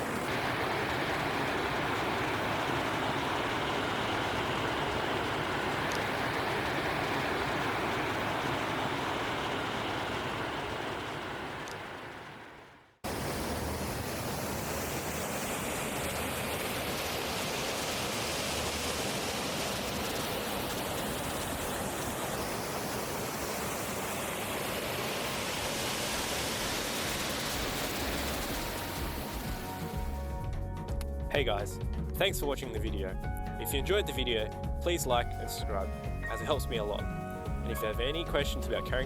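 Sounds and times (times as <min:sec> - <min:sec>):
waterfall rushing: 0:13.1 - 0:29.8.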